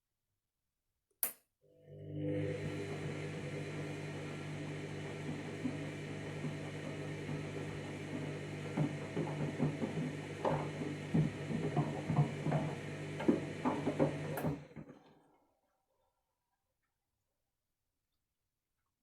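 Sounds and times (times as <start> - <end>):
washing machine motor hum: 1.7 - 15.2.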